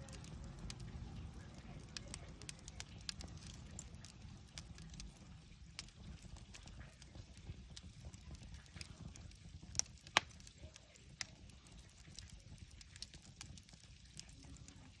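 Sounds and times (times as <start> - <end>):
steady low rumble: 0.0 - 10.7
campfire crackling: 0.0 - 15.0
fire pops and snaps: 0.0 - 15.0.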